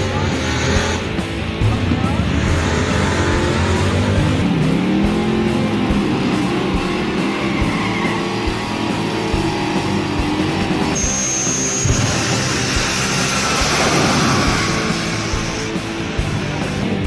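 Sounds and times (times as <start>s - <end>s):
car engine revving: 0.0s - 17.0s
guitar-driven background music: 0.0s - 17.0s.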